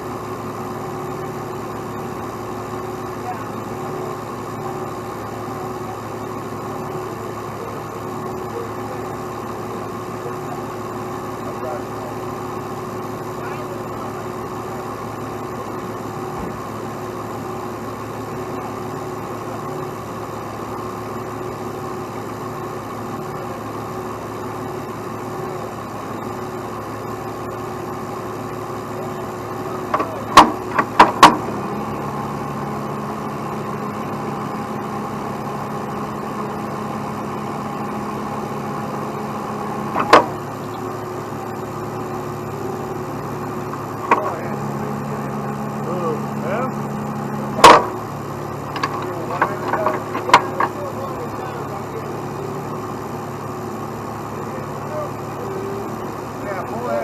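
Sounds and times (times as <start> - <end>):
heavy truck engine idling: 0.0 - 57.0
sharp knocks: 30.0 - 31.5.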